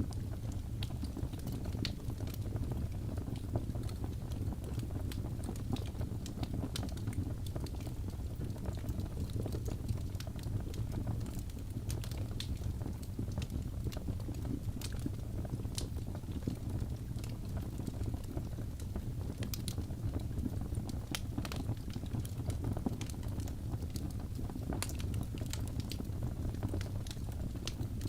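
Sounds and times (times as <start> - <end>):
fire crackling and popping: 0.0 - 28.0
fire rumbling: 0.0 - 28.0.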